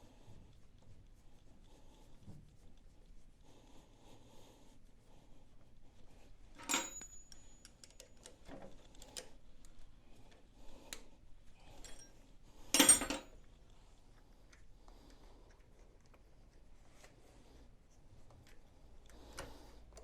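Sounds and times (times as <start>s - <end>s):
metal tools clanking: 6.6s - 8.1s, 11.8s - 12.2s, 12.8s - 13.4s.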